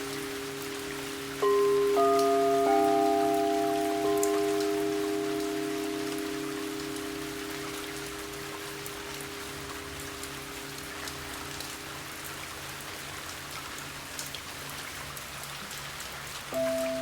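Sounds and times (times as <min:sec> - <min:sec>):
steady rain: 0:00.0 - 0:17.0
singing bowl ringing: 0:01.2 - 0:09.6, 0:16.6 - 0:17.0.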